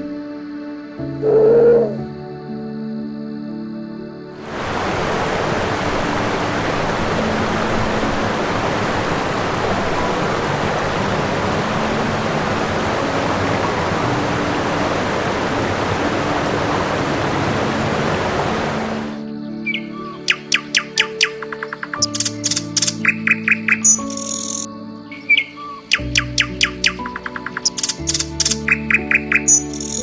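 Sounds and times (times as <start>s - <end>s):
steady rushing noise: 4.4s - 19.2s.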